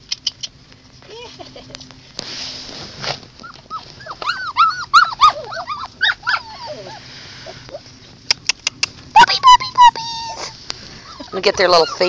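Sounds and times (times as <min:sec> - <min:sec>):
puppies whining and yipping: 0:03.4 - 0:12.0.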